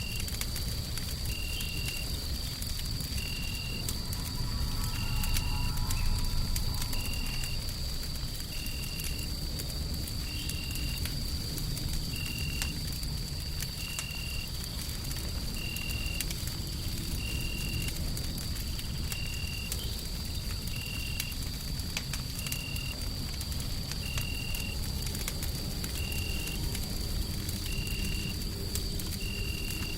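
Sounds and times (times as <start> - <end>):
wood fire crackling and popping: 0.0 - 29.9
steady low rumble: 2.1 - 10.3
constant high tone: 3.2 - 7.8.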